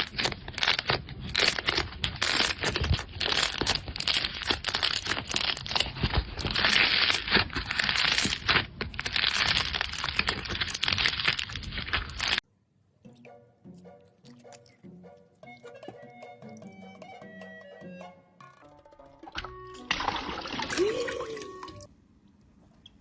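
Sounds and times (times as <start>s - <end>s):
slime squeezed crackling: 0.0s - 12.4s.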